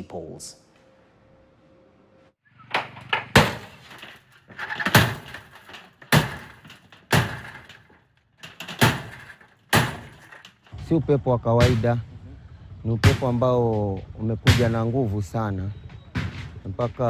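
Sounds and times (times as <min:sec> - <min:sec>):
loud bangs and clattering: 0:02.7 - 0:10.7.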